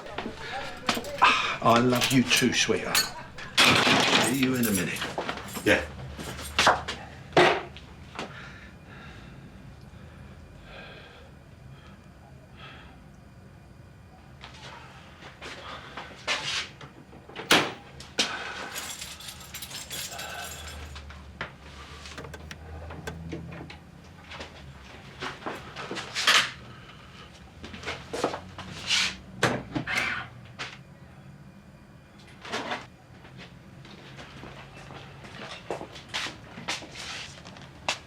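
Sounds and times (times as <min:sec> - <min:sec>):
steady low hum: 0:00.0 - 0:14.4, 0:17.6 - 0:28.0.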